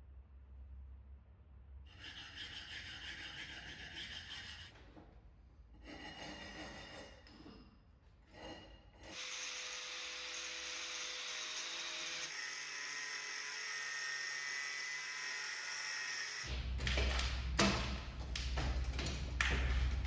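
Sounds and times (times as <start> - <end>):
hand tool scraping hard surface: 5.8 - 9.3.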